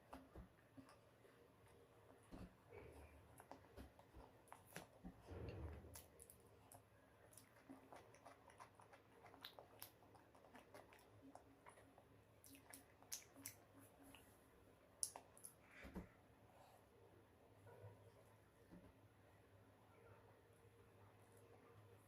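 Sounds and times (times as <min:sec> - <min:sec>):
person chewing: 0:06.0 - 0:14.2
small mouth clicks and smacks: 0:06.0 - 0:14.3, 0:15.0 - 0:15.6.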